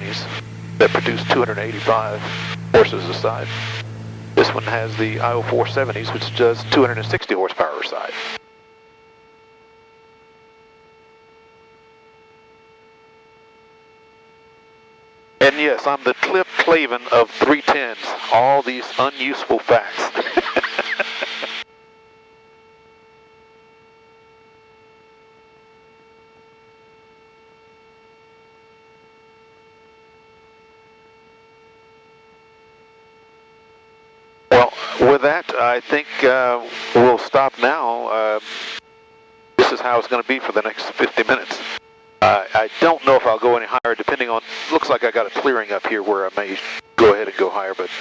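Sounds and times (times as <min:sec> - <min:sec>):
faint electrical hum: 0:00.0 - 0:07.2.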